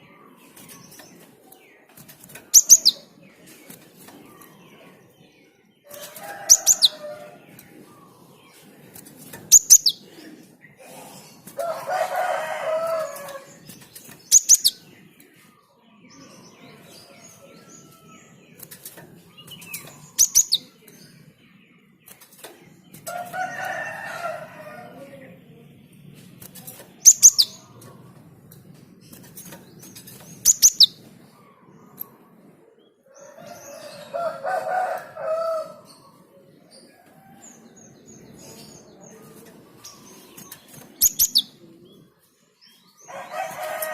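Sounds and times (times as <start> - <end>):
sparrow calling: 2.4 - 3.1, 9.5 - 10.0, 12.6 - 14.9, 19.3 - 20.8, 27.0 - 27.8, 29.8 - 31.1, 39.8 - 41.6
rooster crowing: 5.9 - 7.4, 11.6 - 13.5, 23.1 - 25.1, 33.1 - 35.9, 43.1 - 43.9.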